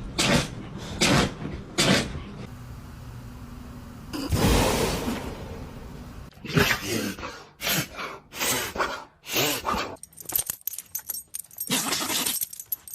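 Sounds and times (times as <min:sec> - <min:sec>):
dog sneezing: 0:00.2 - 0:02.2
light metallic jingling clicks: 0:10.0 - 0:12.9.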